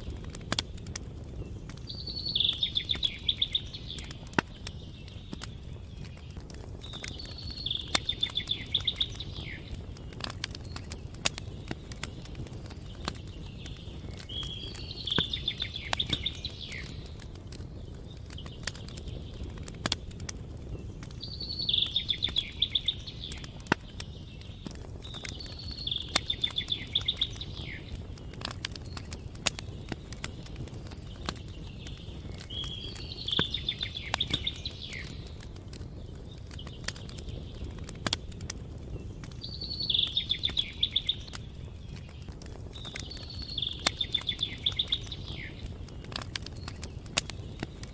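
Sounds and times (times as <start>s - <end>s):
campfire crackling and popping: 0.0s - 47.9s
songbird trilling: 39.5s - 41.3s.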